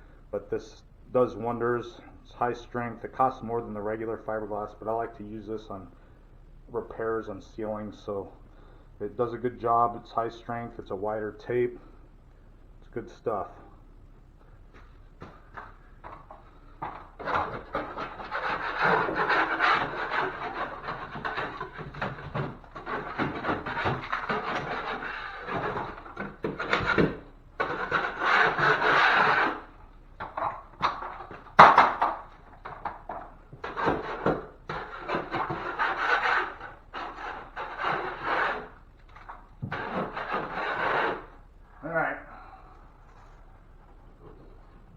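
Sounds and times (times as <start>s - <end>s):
drywall knife scraping drywall: 16.8s - 41.4s.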